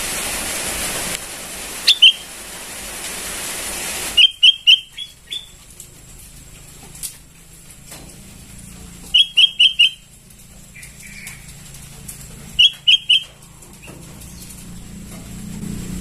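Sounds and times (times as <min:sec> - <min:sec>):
bird chick calling: 0:01.8 - 0:02.4, 0:04.2 - 0:05.7, 0:09.1 - 0:10.1, 0:10.7 - 0:11.6, 0:12.5 - 0:14.5.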